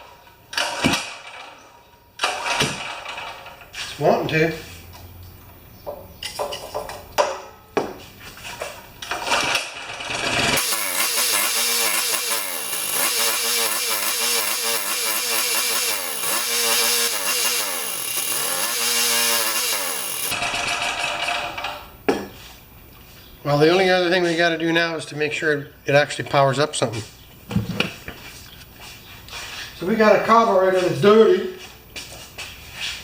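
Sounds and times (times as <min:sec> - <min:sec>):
recoil starter pulls: 0:09.1 - 0:21.8.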